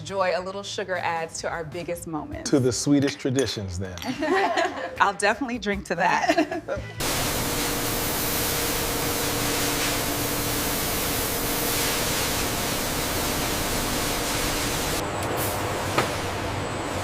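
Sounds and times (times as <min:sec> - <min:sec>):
steady hiss: 0:07.0 - 0:15.0.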